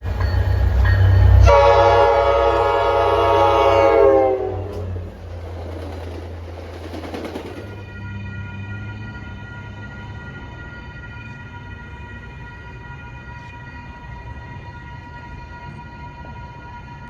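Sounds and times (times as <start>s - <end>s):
passing train rumbling: 0.0s - 17.0s
train horn blast: 1.2s - 5.2s.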